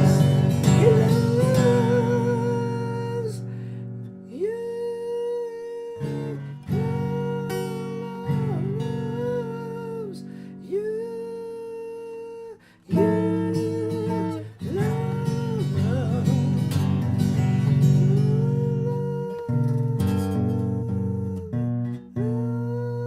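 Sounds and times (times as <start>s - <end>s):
wordless melody line: 0.0s - 3.6s, 5.8s - 10.4s, 12.9s - 23.0s
acoustic guitar strumming chords: 0.0s - 23.0s.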